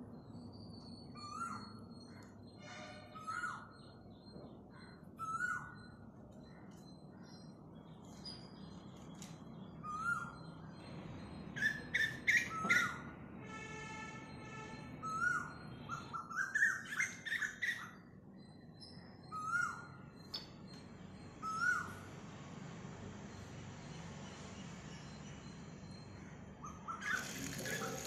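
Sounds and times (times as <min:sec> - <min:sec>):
birds chirping: 0:24.2 - 0:28.0.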